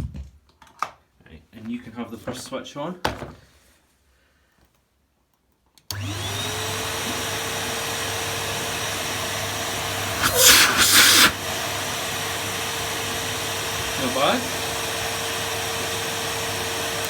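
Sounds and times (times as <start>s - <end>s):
vacuum cleaner motor running: 5.9s - 17.0s.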